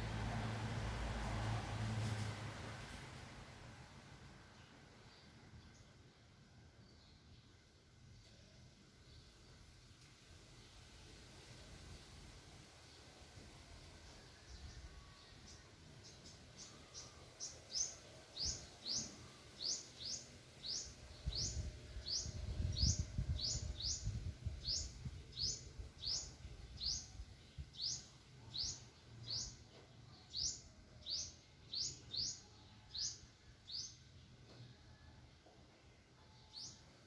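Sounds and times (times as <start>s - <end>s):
bird chirping: 14.1s - 34.3s.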